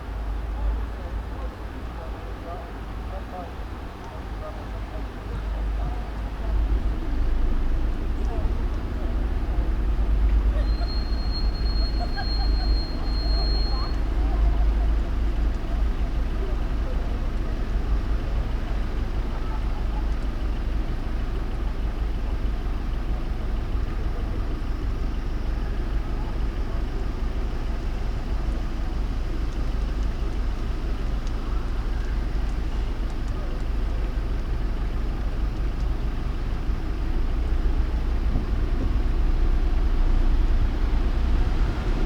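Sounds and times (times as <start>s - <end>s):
car engine and tyres rumble: 0.0s - 42.0s.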